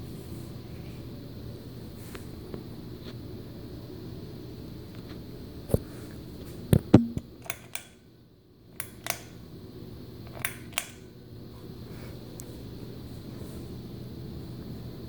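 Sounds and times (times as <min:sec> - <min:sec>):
ceiling fan humming: 0:00.0 - 0:15.0
sharp clicks and knocks: 0:06.8 - 0:07.9, 0:08.8 - 0:09.4, 0:10.3 - 0:11.0.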